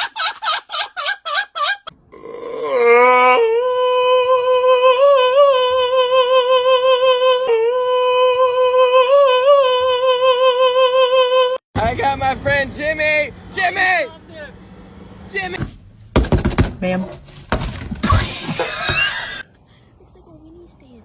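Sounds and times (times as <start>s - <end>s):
high yelping call: 0.0s - 1.9s.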